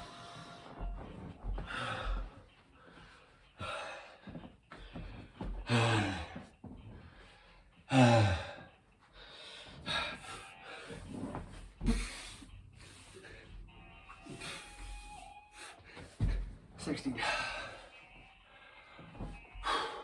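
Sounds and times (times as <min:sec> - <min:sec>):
man breathing hard: 0:01.5 - 0:13.7, 0:14.3 - 0:18.0, 0:18.6 - 0:20.0.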